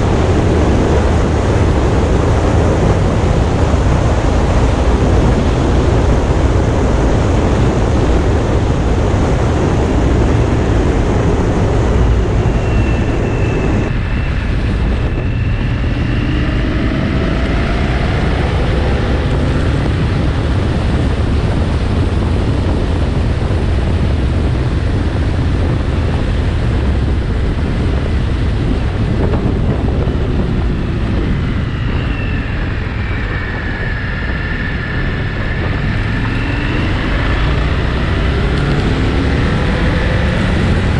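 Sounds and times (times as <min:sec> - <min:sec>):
motorcycle engine and road rumble: 0:00.0 - 0:40.9
wind buffeting microphone: 0:00.0 - 0:40.9.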